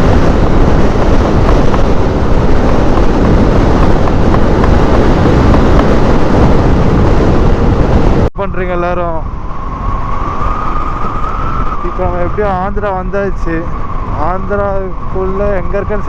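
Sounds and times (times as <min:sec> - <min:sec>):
motorcycle engine: 0:00.0 - 0:08.3
wind rushing over microphone: 0:00.0 - 0:16.0.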